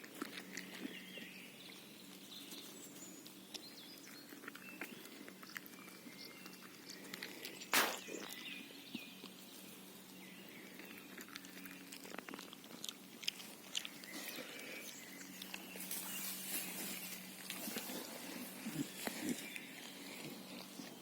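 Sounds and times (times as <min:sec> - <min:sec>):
sharp click: 0:07.7 - 0:08.0.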